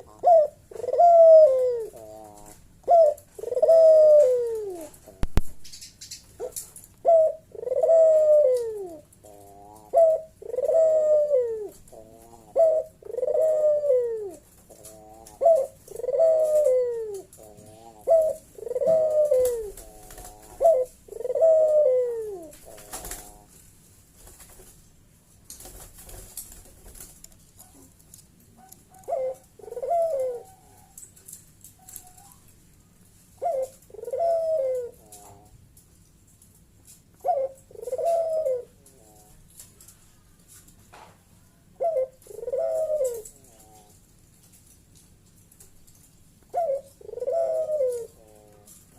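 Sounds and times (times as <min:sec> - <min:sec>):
dove cooing: 0:00.0 - 0:23.6, 0:28.6 - 0:31.0, 0:33.4 - 0:35.6, 0:37.2 - 0:39.5, 0:41.6 - 0:44.0, 0:46.5 - 0:48.9.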